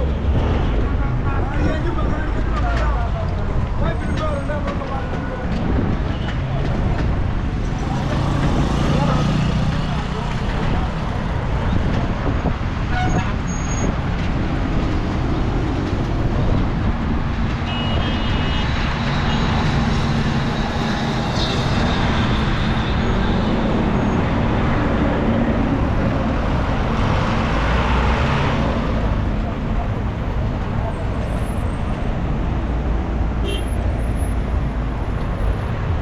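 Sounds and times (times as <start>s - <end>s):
vehicle engines running: 0.0s - 36.0s
car horn toot: 17.7s - 18.6s, 33.4s - 33.8s.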